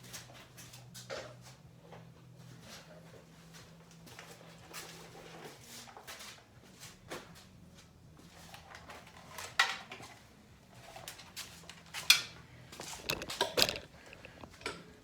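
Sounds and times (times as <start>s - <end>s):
objects clattering: 12.1s - 15.0s
small objects clicking and clinking: 12.8s - 14.8s.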